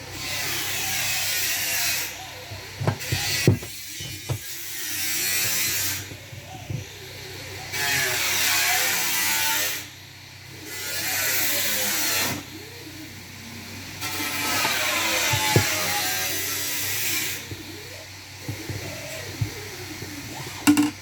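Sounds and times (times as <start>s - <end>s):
small high-speed power tool: 7.7s - 10.0s, 10.6s - 12.5s, 14.0s - 17.8s.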